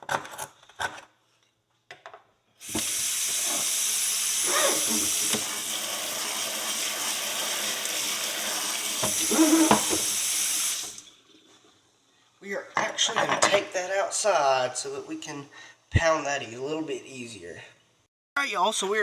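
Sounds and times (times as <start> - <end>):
water running into a sink: 2.6 - 11.8
tap turned on: 2.7 - 3.6, 5.0 - 5.6, 9.0 - 10.2.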